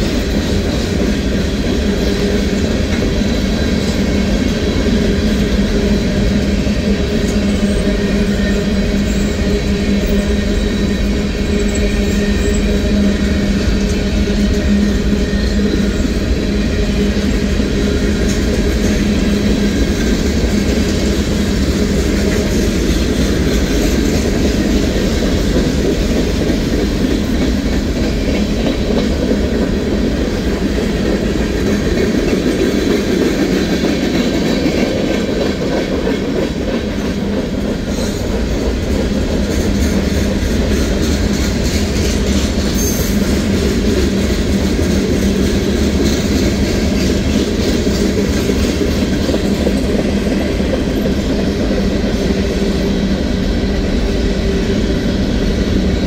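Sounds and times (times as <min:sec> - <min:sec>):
wheels clacking over rail joints: 0:15.6 - 0:52.6.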